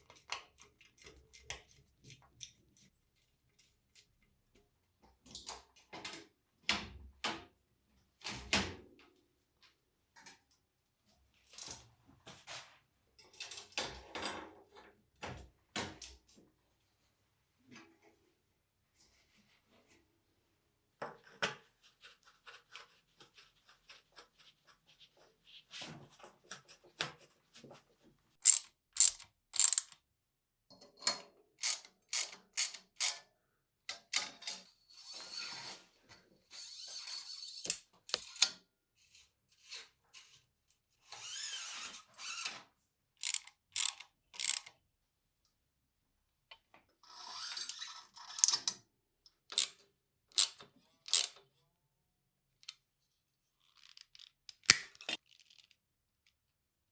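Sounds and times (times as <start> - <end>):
ratcheting rasps: 28.4 - 30.0, 43.2 - 44.7.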